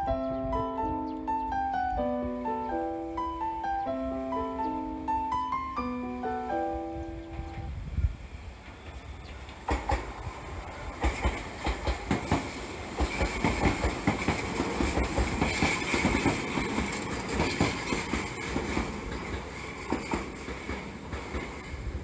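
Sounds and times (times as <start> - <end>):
electric train running past: 0.0 - 22.0
wheels clicking over rail joints: 8.6 - 22.0.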